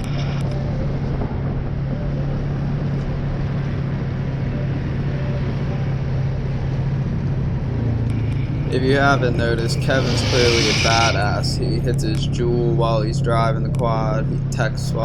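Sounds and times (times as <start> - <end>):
atv engine running: 0.0 - 10.1
rushing noise: 0.0 - 14.5.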